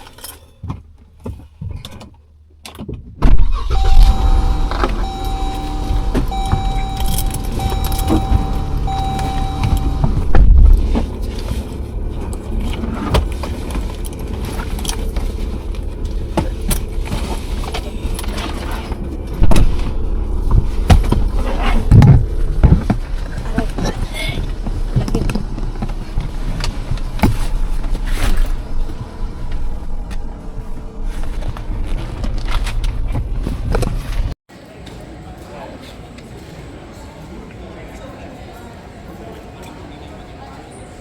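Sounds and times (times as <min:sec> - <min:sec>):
car engine and road rumble: 0:00.0 - 0:34.4
car warning chime beeping: 0:03.6 - 0:11.3
keys clicking and knocking: 0:03.8 - 0:10.4.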